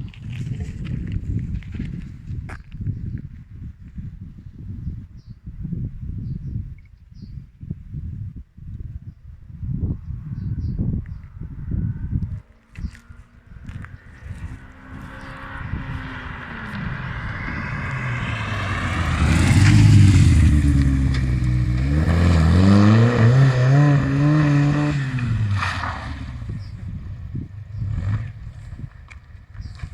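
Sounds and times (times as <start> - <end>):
race car engine at full throttle: 10.2 - 26.8.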